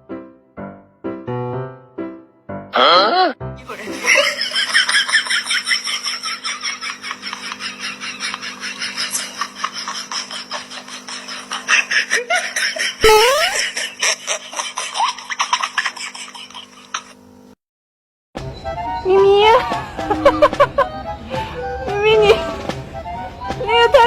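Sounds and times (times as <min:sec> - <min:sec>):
rapid pulsing laughter: 0:03.6 - 0:17.2, 0:19.7 - 0:21.0
short rising squeak: 0:13.0 - 0:13.7.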